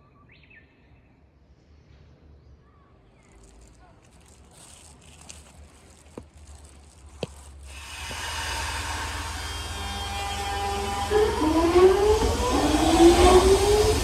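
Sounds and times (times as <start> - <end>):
traction motor whine: 4.1 - 14.0
electric train running noise: 6.1 - 14.0.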